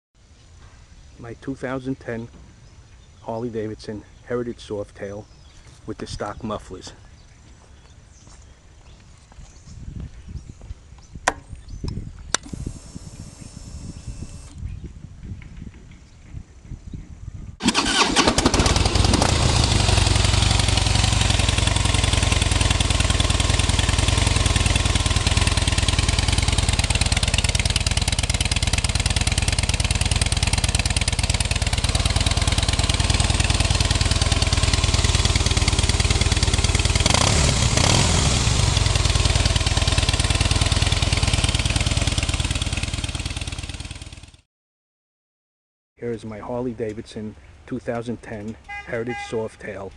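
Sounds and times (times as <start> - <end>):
motorcycle engine cranking: 17.6 - 44.1
motorcycle engine idling: 17.8 - 44.4.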